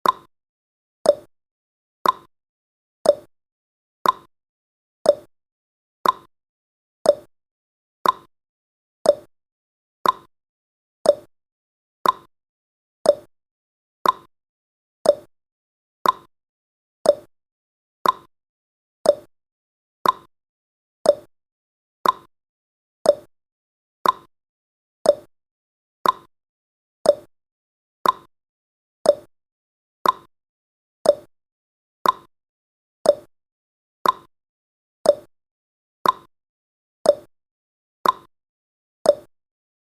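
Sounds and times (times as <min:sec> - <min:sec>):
clock ticking: 0:02.0 - 0:02.3, 0:04.0 - 0:04.3, 0:06.0 - 0:06.3, 0:08.0 - 0:08.3, 0:10.0 - 0:10.3, 0:12.0 - 0:12.3, 0:14.0 - 0:14.3, 0:15.1 - 0:15.3, 0:16.0 - 0:16.3, 0:17.1 - 0:17.3, 0:18.0 - 0:18.3, 0:19.1 - 0:19.3, 0:20.0 - 0:20.3, 0:21.1 - 0:21.3, 0:22.0 - 0:22.3, 0:24.0 - 0:24.3, 0:26.0 - 0:26.3, 0:28.0 - 0:28.3, 0:29.1 - 0:29.3, 0:30.0 - 0:30.3, 0:31.1 - 0:31.3, 0:32.0 - 0:32.3, 0:33.1 - 0:33.3, 0:34.0 - 0:34.3, 0:35.1 - 0:35.3, 0:36.0 - 0:36.3, 0:38.0 - 0:38.3, 0:39.1 - 0:39.3.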